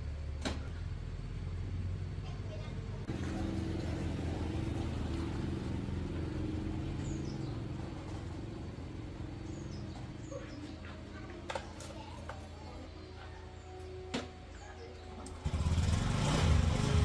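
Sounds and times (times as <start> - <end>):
engine idling: 0.0 - 11.4, 15.2 - 17.0
birds chirping: 4.2 - 15.4.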